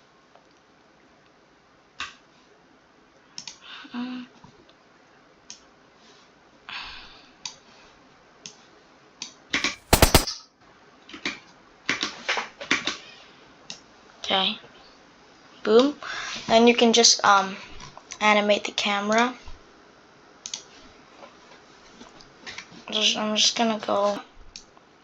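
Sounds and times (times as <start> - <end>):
gunshot-like sound effect: 9.8 - 10.3.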